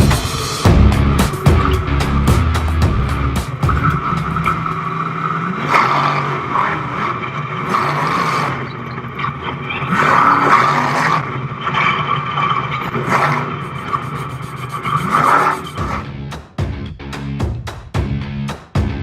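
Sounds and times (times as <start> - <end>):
truck engine revving: 0.0 - 17.4.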